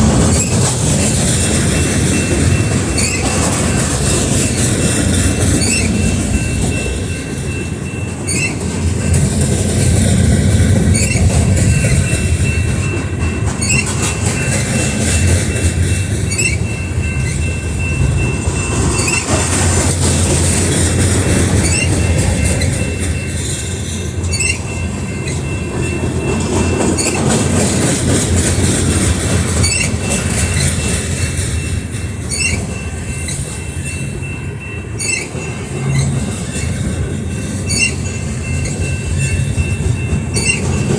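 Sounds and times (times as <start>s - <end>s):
train wheels rumbling on rail: 0.0s - 40.9s
wheels clacking over rail joints: 0.0s - 40.9s
thin wheel squeal: 3.0s - 3.3s, 5.6s - 6.0s, 8.3s - 8.6s, 16.3s - 16.6s, 21.6s - 22.0s, 32.3s - 32.6s, 37.7s - 38.0s, 40.4s - 40.7s.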